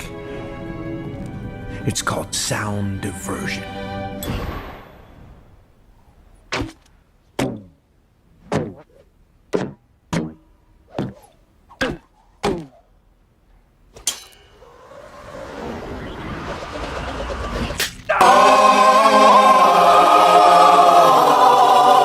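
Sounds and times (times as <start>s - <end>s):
music: 0.0s - 5.4s, 18.2s - 22.0s.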